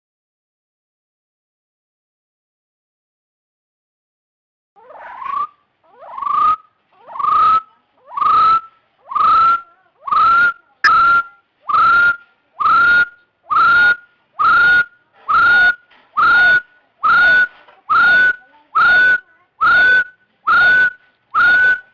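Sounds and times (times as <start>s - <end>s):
bird whistling upslurred notes: 17.0s - 21.9s.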